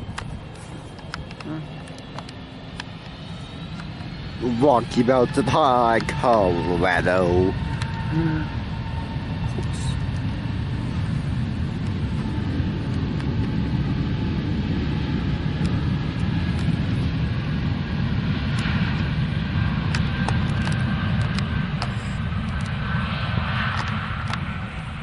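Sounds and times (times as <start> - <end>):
aircraft engine rumble: 0.0 - 25.0
high engine whine: 0.0 - 25.0.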